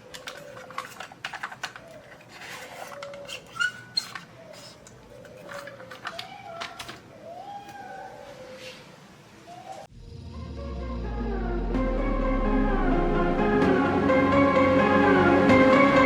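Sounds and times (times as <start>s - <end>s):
small plastic parts clicking: 0.0s - 7.1s.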